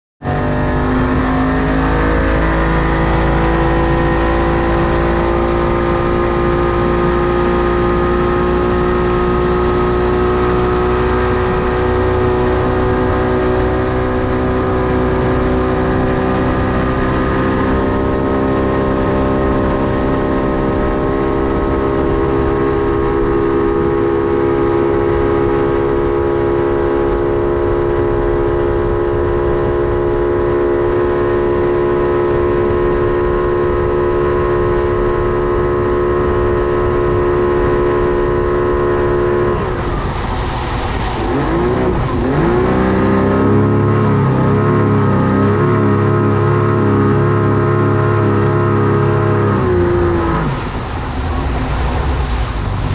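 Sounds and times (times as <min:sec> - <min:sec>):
boat engine running: 0:00.2 - 0:52.9
low rush of noise: 0:47.8 - 0:52.9.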